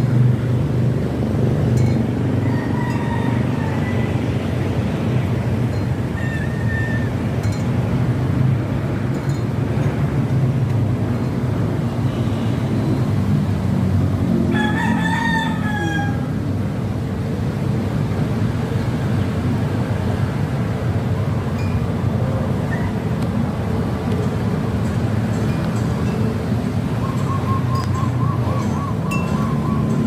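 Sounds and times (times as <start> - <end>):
rooster crowing: 2.4 - 4.4, 14.5 - 16.4.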